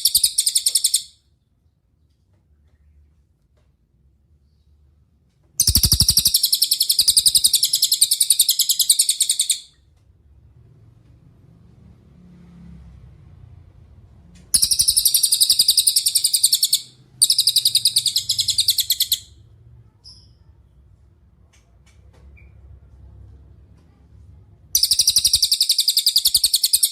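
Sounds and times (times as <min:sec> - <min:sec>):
songbird trilling: 0:00.0 - 0:01.1, 0:05.6 - 0:09.7, 0:14.5 - 0:19.3, 0:24.8 - 0:26.9.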